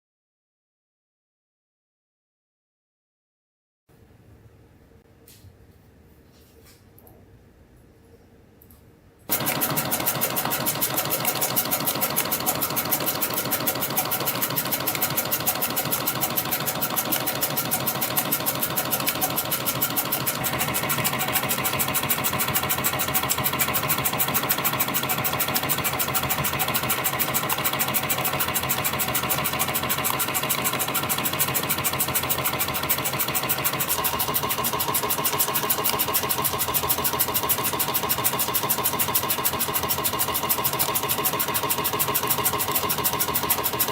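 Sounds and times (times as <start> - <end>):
spring coiling machine clatter: 9.3 - 43.9.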